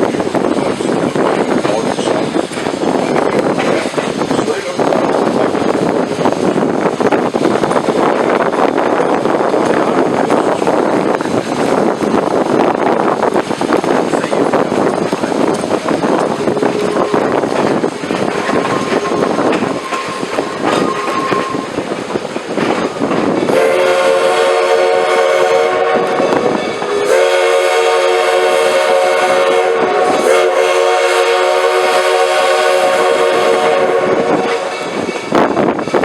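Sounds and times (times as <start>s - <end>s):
train running: 0.0s - 36.0s
wind noise on microphone: 0.0s - 36.0s
locomotive steam whistle: 18.4s - 21.8s, 23.5s - 35.0s.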